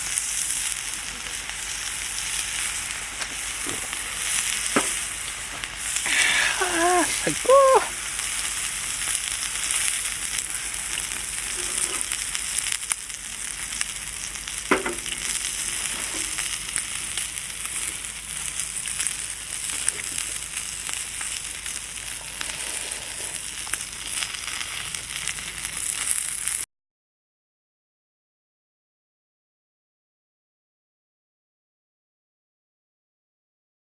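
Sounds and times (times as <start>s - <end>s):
beef sizzling on a grill plate: 0.0s - 26.7s.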